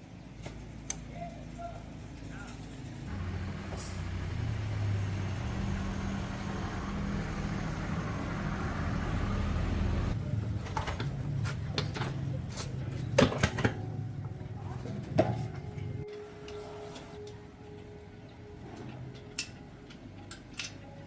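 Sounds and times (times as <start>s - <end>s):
machine motor droning: 3.1s - 10.2s.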